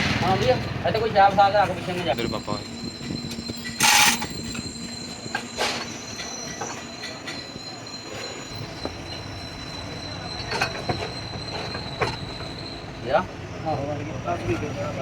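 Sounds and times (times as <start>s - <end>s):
machinery metallic whine: 1.8s - 13.1s.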